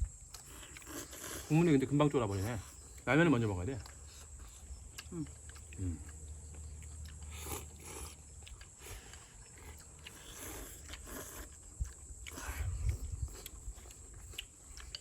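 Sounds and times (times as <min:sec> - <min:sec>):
chewing: 0:00.0 - 0:15.0
noodle slurping: 0:07.3 - 0:08.2, 0:08.8 - 0:14.0.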